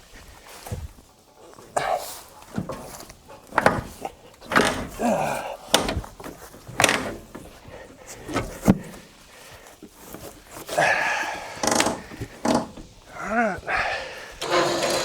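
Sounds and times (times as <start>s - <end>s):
knocks and clunks: 2.4s - 9.2s, 10.0s - 15.0s.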